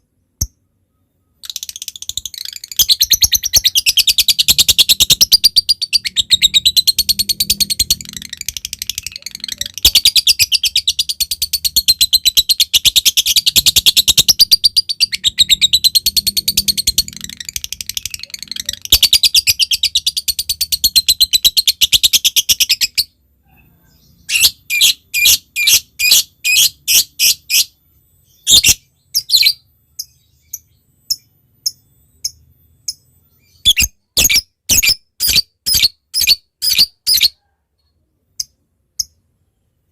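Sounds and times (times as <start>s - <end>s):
lovebird sharp chirps: 0.3s - 23.1s, 23.9s - 37.4s
lovebird chattering trill: 1.4s - 23.1s, 28.4s - 37.4s.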